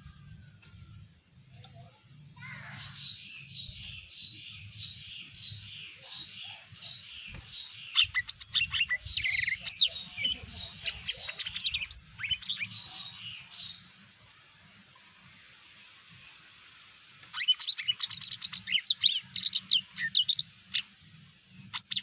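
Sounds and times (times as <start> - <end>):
bird chirps and trills: 1.4 - 13.9, 17.2 - 21.0, 21.6 - 22.0.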